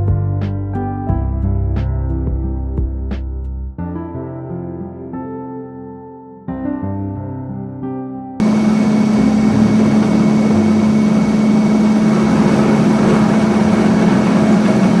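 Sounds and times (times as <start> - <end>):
train engine hum: 8.4 - 15.0
train rumbling: 8.4 - 15.0.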